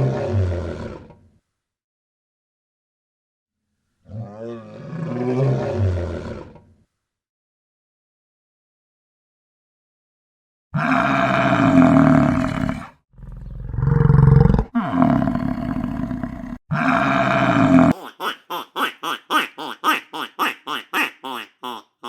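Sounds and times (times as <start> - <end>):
cow lowing: 17.9 - 22.0
short falling animal calls: 17.9 - 22.0.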